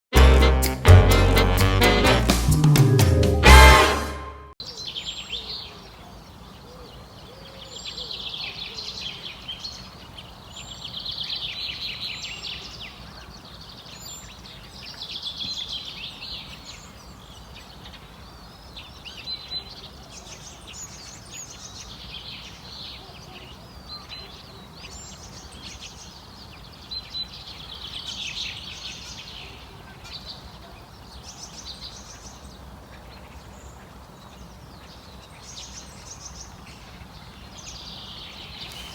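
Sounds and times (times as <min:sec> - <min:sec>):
flock of birds chattering: 0:32.9 - 0:38.9.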